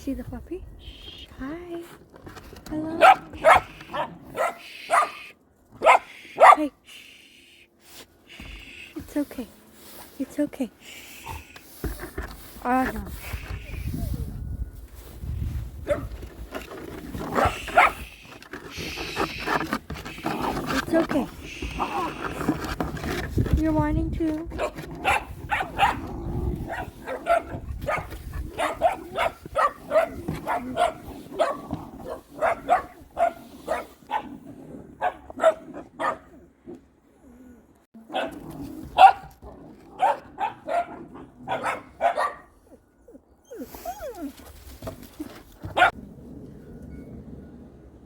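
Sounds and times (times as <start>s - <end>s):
dog barking: 3.0s - 6.8s, 17.4s - 18.1s, 24.6s - 26.0s, 26.7s - 34.4s, 35.0s - 36.3s, 38.1s - 38.4s, 39.0s - 39.3s, 40.0s - 42.6s, 45.7s - 46.0s.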